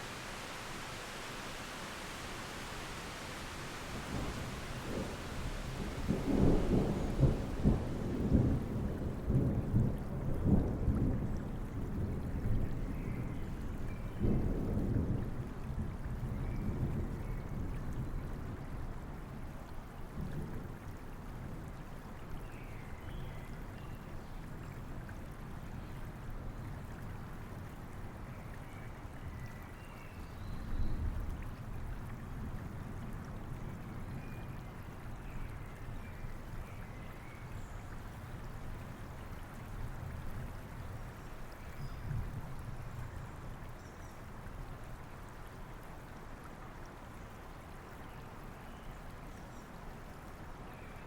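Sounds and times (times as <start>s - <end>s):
flowing stream: 0.0s - 51.0s
steady rain: 0.0s - 51.0s
distant thunder rumble: 4.0s - 10.6s.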